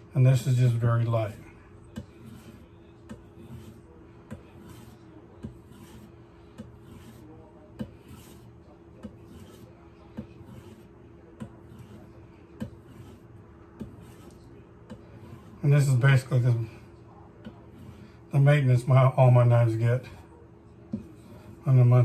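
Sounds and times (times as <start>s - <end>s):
knife blade rubbing on leather: 2.0s - 15.6s.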